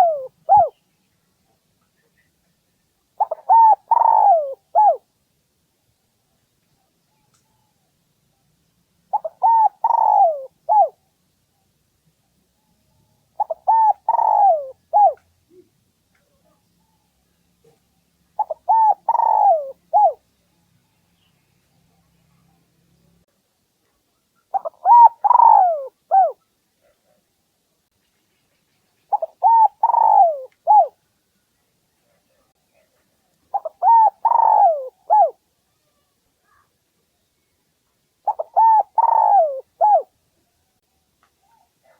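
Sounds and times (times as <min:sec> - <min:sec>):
dove cooing: 0:00.0 - 0:00.8, 0:03.2 - 0:05.0, 0:09.1 - 0:11.0, 0:13.4 - 0:15.7, 0:18.4 - 0:20.2, 0:24.5 - 0:26.4, 0:29.1 - 0:31.0, 0:33.5 - 0:35.4, 0:38.2 - 0:40.1.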